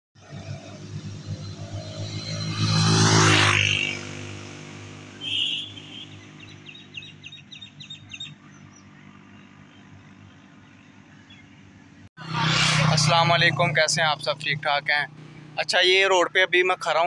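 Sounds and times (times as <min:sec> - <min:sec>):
bird chirping: 0:05.2 - 0:11.7.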